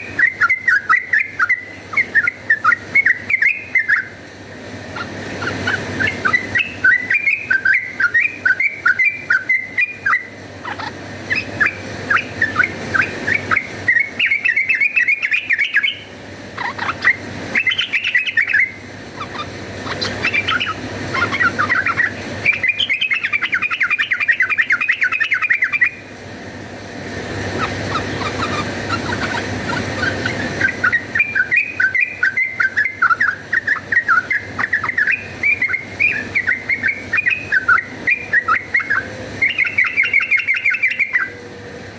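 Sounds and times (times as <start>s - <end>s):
bird chattering chirps: 4.9s - 26.0s, 27.2s - 41.4s.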